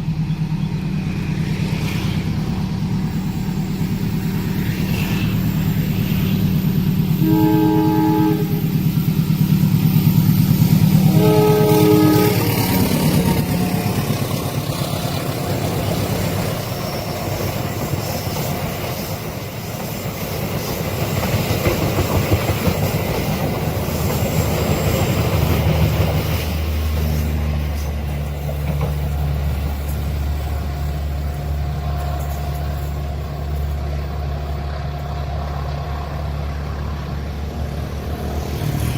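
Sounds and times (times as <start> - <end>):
diesel locomotive engine: 0.0 - 38.9
train cars clattering: 0.0 - 38.9
train horn blasts: 7.2 - 8.8, 11.0 - 13.2.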